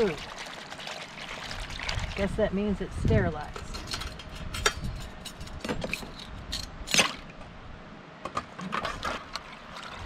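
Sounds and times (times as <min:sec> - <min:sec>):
dishes and utensils clattering: 0:03.6 - 0:07.0.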